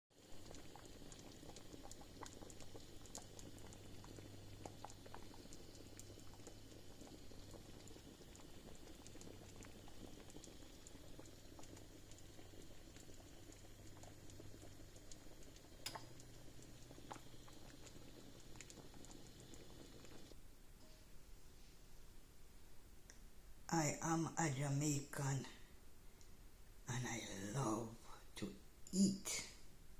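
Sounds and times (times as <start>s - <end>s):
soup bubbling in a pot: 0.1s - 20.4s.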